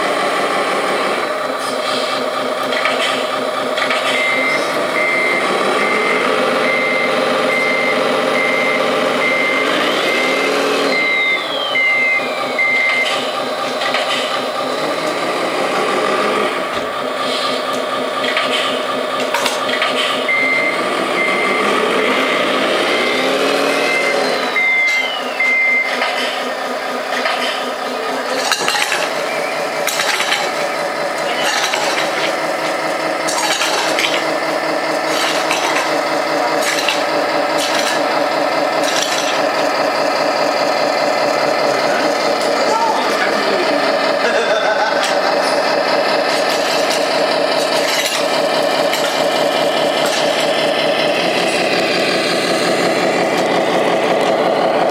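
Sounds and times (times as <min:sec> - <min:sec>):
simulated diesel engine running: 0:00.0 - 0:54.9
reversing beeper: 0:03.2 - 0:18.2, 0:20.1 - 0:27.0, 0:27.7 - 0:46.2.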